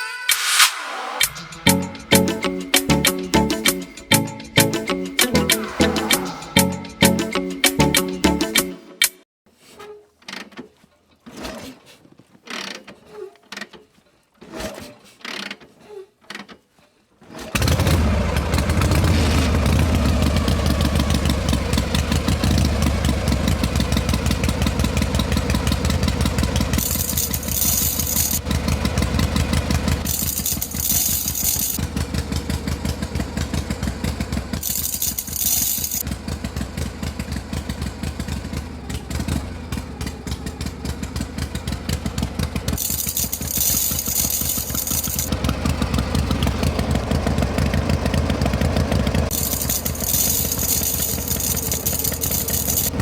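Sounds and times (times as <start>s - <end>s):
handling knocks and clicks: 49.3s - 53.0s.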